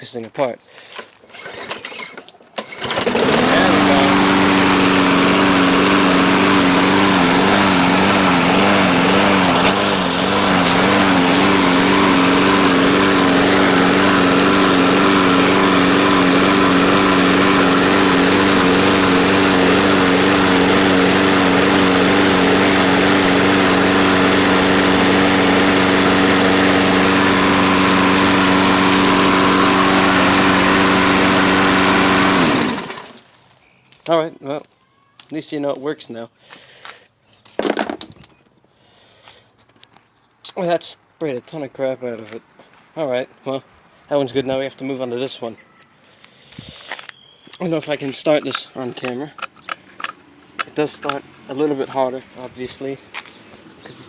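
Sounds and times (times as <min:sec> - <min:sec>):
lawnmower engine running: 0:02.6 - 0:33.6.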